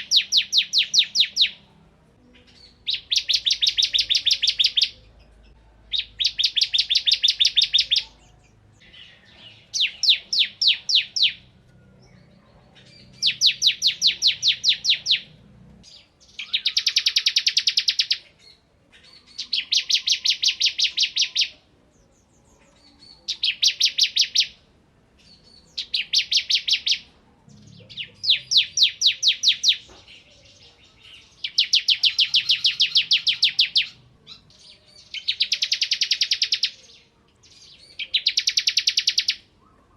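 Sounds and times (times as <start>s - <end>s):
bird singing rapid high notes: 2.5s - 5.0s, 5.9s - 12.1s, 12.8s - 18.3s.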